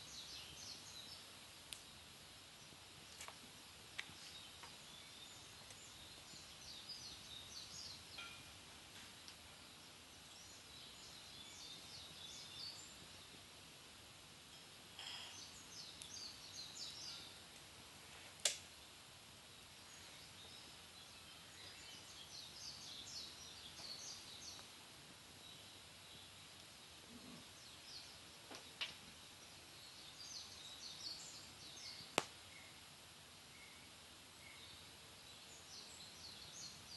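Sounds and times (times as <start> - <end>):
wood fire crackling: 0.0 - 30.6, 31.4 - 36.9
sharp pops from fire: 14.9 - 16.3, 18.3 - 18.8, 28.5 - 29.0, 31.9 - 32.5.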